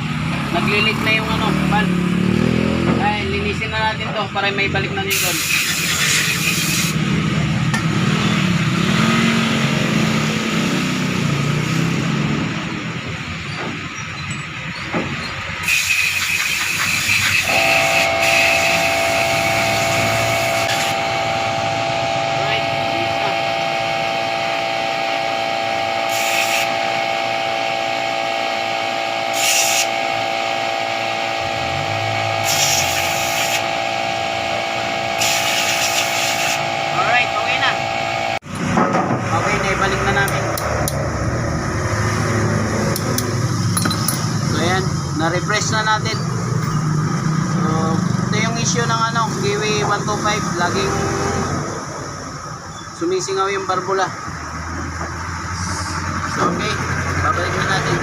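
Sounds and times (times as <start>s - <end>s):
engine running: 0.0s - 58.0s
loud hiss: 5.1s - 7.0s, 15.6s - 18.7s
spraying hiss: 5.1s - 7.0s
steady hum: 17.4s - 38.5s.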